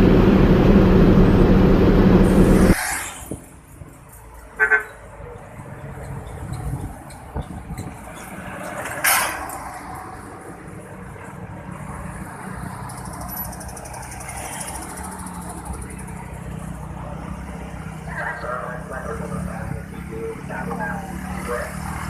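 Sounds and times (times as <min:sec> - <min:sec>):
diesel engine idling: 0:00.0 - 0:02.8.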